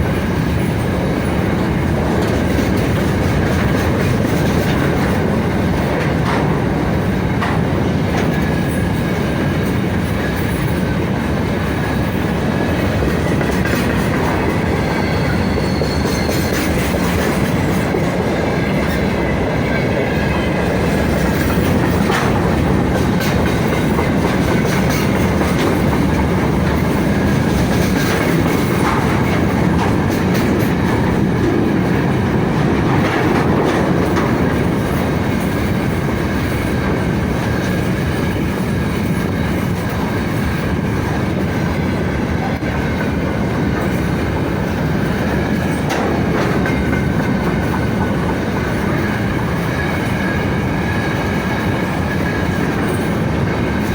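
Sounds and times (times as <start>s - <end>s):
freight train rolling past: 0.0s - 53.9s
wheels clicking over rail joints: 0.0s - 53.9s
faint high wheel squeal: 14.3s - 17.3s.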